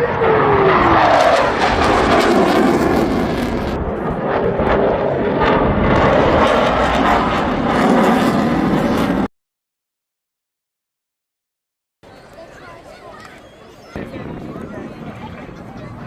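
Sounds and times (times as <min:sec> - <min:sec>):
aircraft engine passing: 0:00.0 - 0:09.3
aircraft rushing away: 0:00.0 - 0:09.3.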